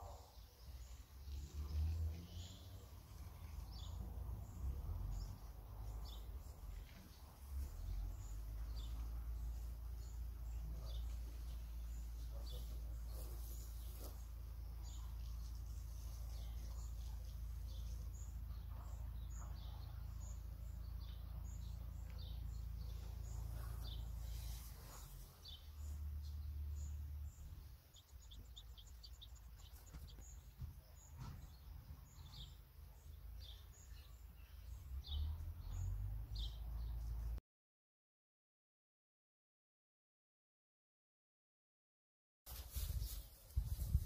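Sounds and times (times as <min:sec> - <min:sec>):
small birds chirping: 0:00.0 - 0:37.4, 0:42.5 - 0:44.0.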